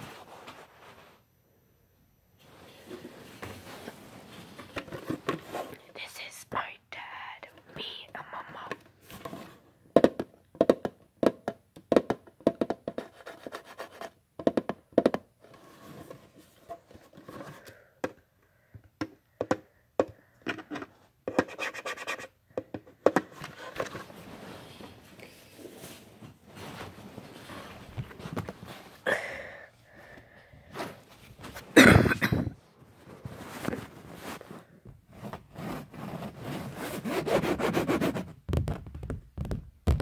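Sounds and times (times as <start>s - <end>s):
scratching on a surface: 21.3s - 22.4s, 33.2s - 38.3s.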